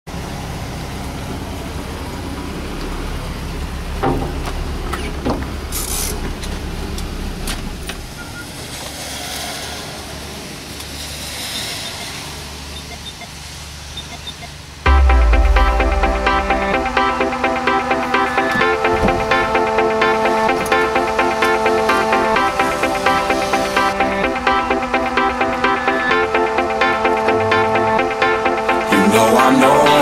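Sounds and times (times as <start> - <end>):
low outdoor rumble: 14.8 - 29.9.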